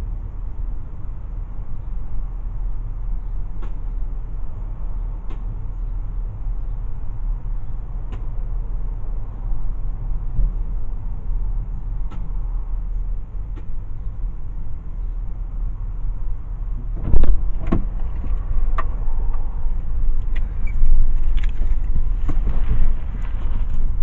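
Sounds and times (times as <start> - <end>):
road and engine rumble: 0.0 - 24.0
loud thump: 16.9 - 18.2.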